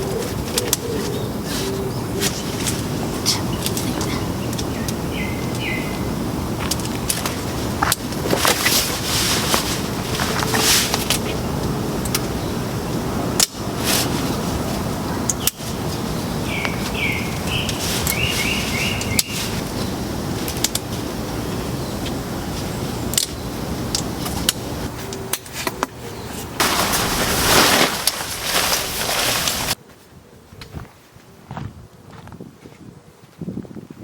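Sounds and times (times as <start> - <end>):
rushing outdoor noise: 0.0 - 32.7
bird chirping: 3.2 - 6.2, 15.2 - 20.7
loud hiss: 26.6 - 29.8.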